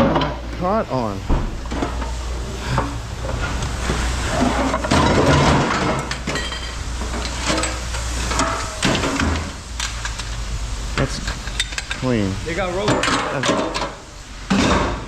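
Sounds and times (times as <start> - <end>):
scrap metal clanking: 1.6 - 10.3.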